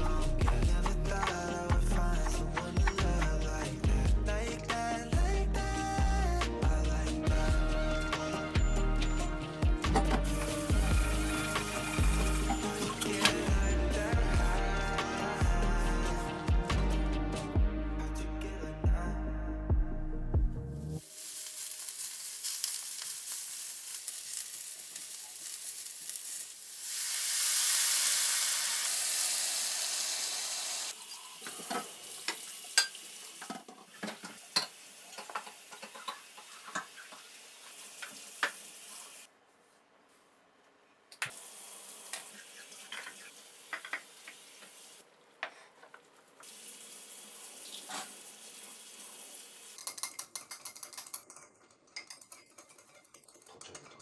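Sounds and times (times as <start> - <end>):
utensils and dishes clattering: 0.0 - 3.9, 8.1 - 14.2, 31.2 - 37.3, 49.7 - 54.0
steady hiss: 4.5 - 15.4, 21.0 - 33.6, 46.4 - 49.8.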